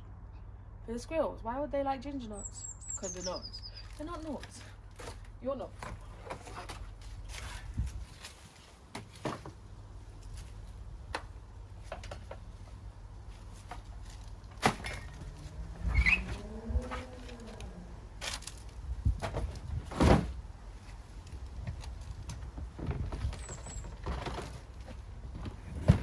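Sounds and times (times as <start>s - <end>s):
light knocks of handled things: 3.9s - 26.0s
short creak: 14.8s - 18.6s.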